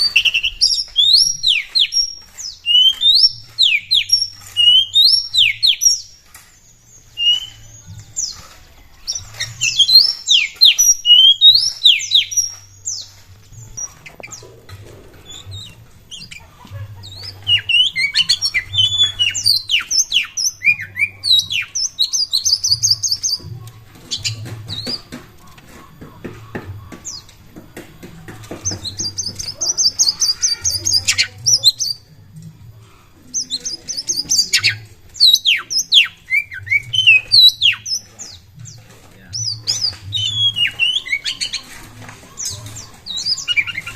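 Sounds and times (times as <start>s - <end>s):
songbird whistling and trilling: 0.0s - 8.4s, 9.0s - 14.4s, 15.2s - 23.4s, 33.3s - 38.5s, 39.3s - 41.7s.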